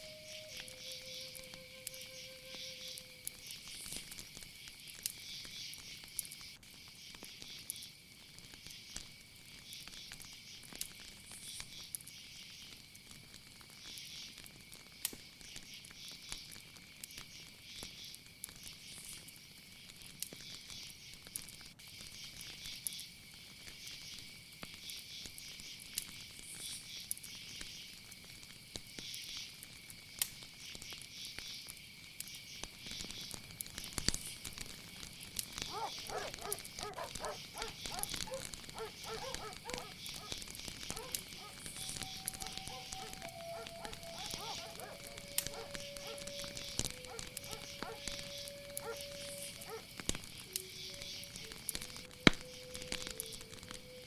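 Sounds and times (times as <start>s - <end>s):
insect high trill: 0.0s - 4.1s, 35.6s - 54.0s
insect pulsing chirps: 0.0s - 4.1s, 35.2s - 54.0s
faint crackles: 0.0s - 54.0s.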